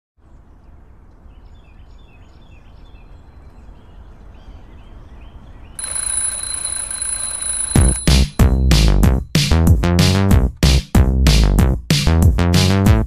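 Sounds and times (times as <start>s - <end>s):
birds chirping: 0.2s - 6.8s.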